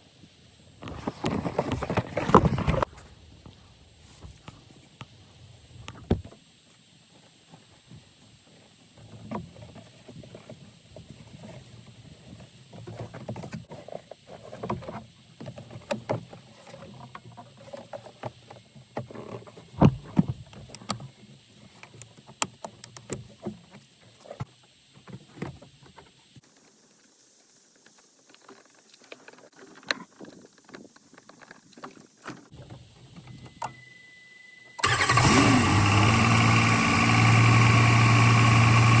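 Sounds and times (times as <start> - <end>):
car engine starting and idling: 34.8 - 39.0.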